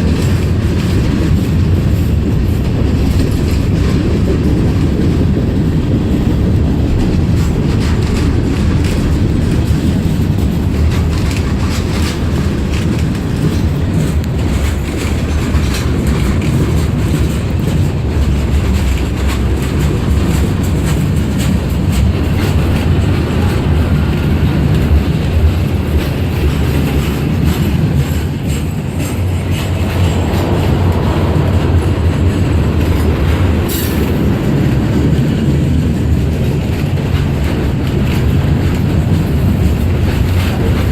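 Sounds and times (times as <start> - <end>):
freight train rumbling: 0.0 - 40.9
wheels clicking over rail joints: 0.0 - 40.9.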